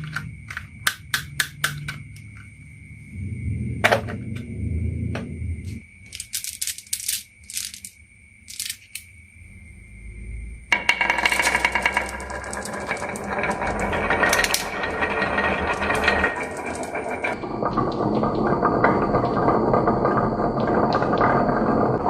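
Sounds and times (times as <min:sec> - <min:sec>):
marbles clattering on wooden track: 0:06.0 - 0:09.1, 0:10.7 - 0:22.0.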